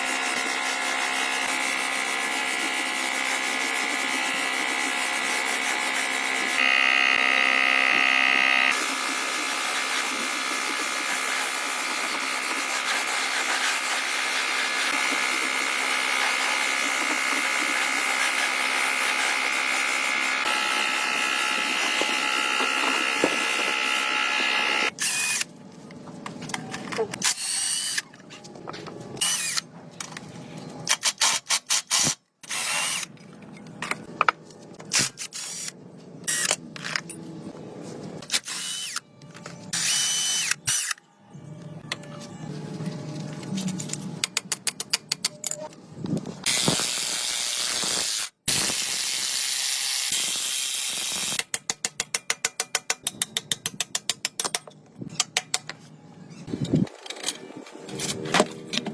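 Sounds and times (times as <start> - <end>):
power tool whining: 5.7 - 10.9, 14.7 - 25.4.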